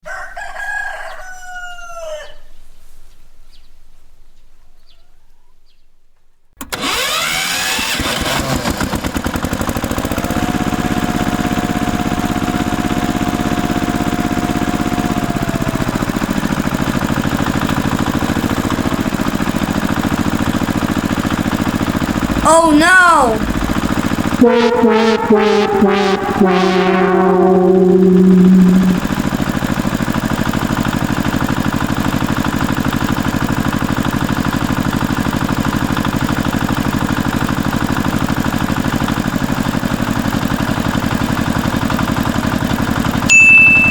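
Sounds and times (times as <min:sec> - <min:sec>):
rooster crowing: 0:00.0 - 0:02.6
steady tone: 0:22.2 - 0:29.3
engine running: 0:23.4 - 0:29.4.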